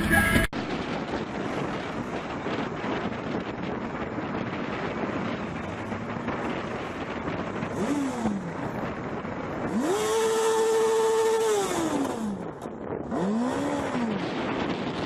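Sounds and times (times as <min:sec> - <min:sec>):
road noise: 0:00.0 - 0:15.0
car engine revving: 0:04.4 - 0:15.0.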